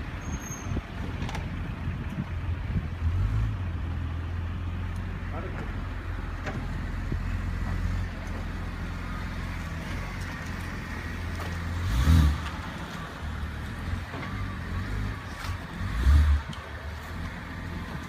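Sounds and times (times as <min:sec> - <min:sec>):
car engine idling: 0:00.9 - 0:15.8
engine revving: 0:03.0 - 0:04.1, 0:09.6 - 0:18.0.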